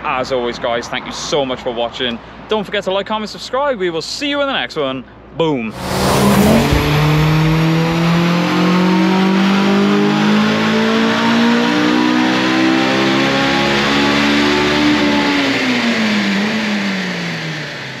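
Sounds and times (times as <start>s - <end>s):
car engine revving: 5.8s - 17.1s.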